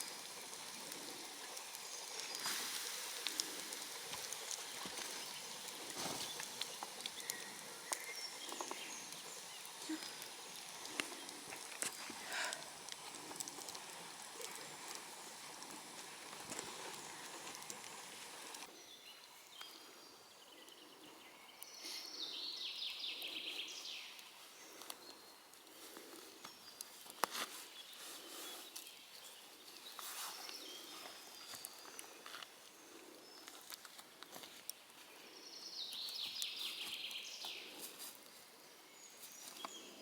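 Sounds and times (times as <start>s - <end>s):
steady hiss: 0.0s - 40.0s
songbird trill: 7.2s - 10.4s, 35.4s - 37.8s.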